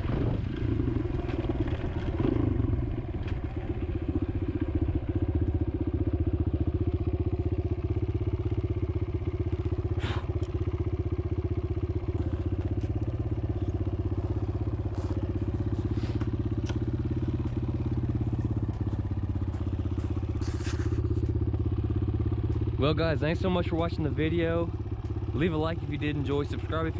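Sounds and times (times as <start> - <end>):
dirt bike engine running: 0.0 - 26.9
sharp ticks: 16.2 - 26.9.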